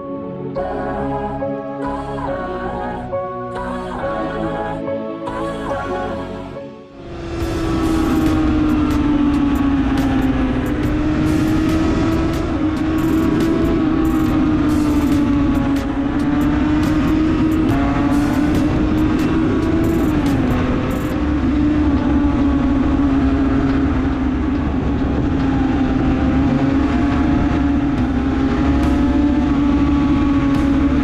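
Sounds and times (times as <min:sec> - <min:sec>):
two-stroke engine at high revs: 0:07.2 - 0:31.0.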